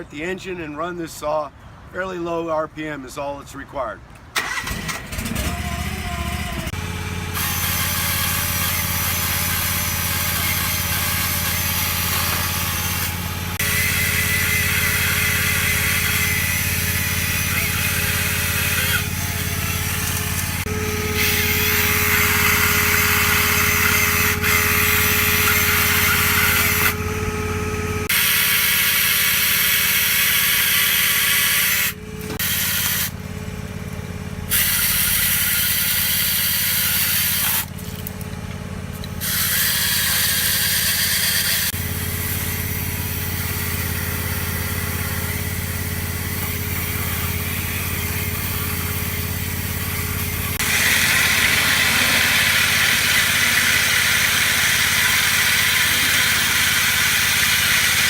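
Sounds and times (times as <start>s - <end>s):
chainsaw running: 4.4s - 58.0s
boat engine hum: 44.0s - 57.6s.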